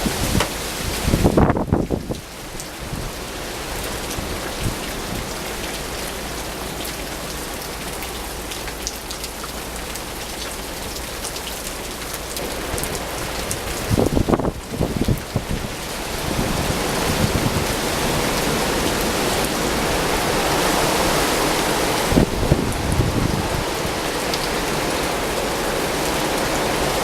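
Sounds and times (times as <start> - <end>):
wind gust buffeting microphone: 0.0 - 2.2, 12.4 - 27.0
rain falling: 0.0 - 27.0.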